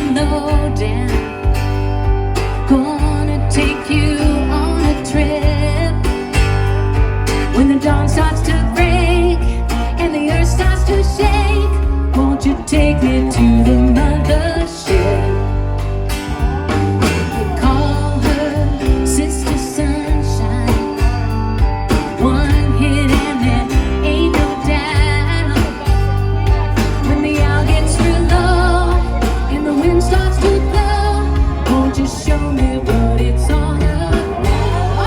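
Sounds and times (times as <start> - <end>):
live rock band playing: 0.0 - 35.0.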